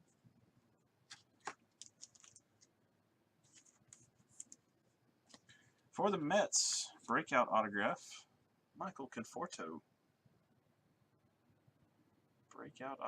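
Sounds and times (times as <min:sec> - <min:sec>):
trading cards rustling: 0:01.0 - 0:02.7, 0:03.4 - 0:04.7.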